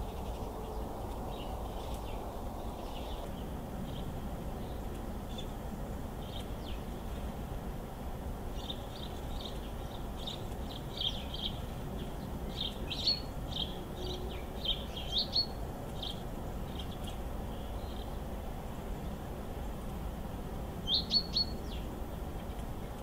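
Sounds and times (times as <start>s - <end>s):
songbirds chirping: 0.0s - 23.0s.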